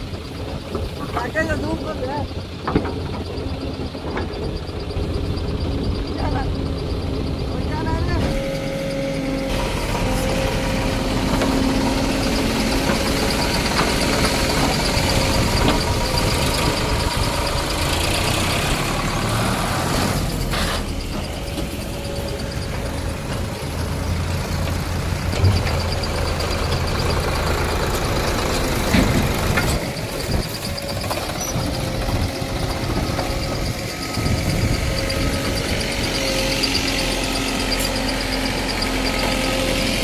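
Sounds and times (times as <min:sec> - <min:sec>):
diesel machinery engines running: 0:00.0 - 0:40.0.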